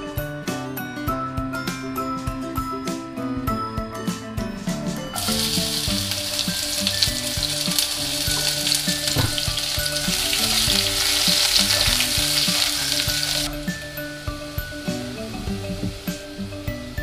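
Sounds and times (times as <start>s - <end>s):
light background music: 0.0s - 17.0s
chopsticks stirring: 5.2s - 16.4s
shallots sizzling in hot oil: 5.2s - 17.0s.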